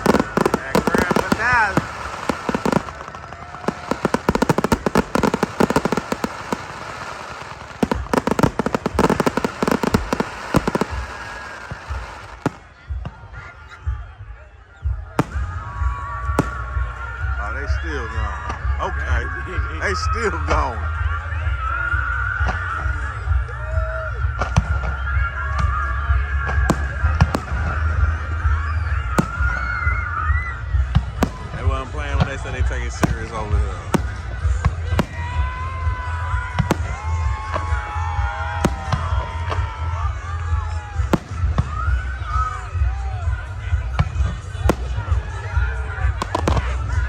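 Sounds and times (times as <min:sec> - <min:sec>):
fireworks popping and crackling: 0:00.0 - 0:13.6, 0:15.1 - 0:17.4, 0:26.6 - 0:47.0.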